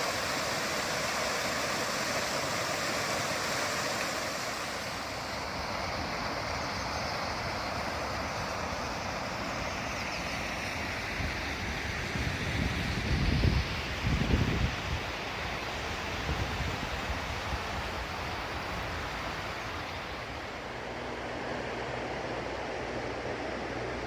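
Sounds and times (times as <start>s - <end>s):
running water rushing: 0.0s - 21.3s
wind buffeting microphone: 5.0s - 20.5s.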